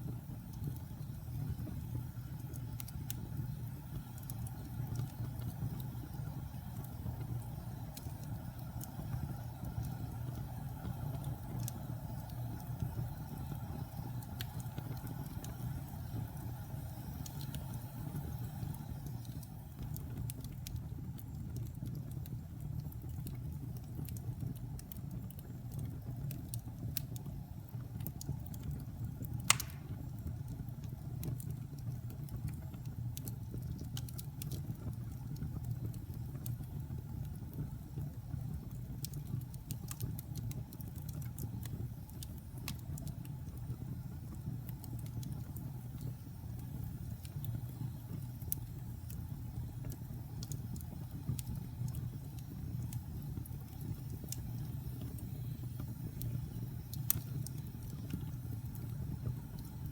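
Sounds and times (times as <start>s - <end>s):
fire crackling: 0.0s - 59.9s
wood fire rumbling: 0.0s - 59.9s
loud wood pop: 29.5s - 29.9s.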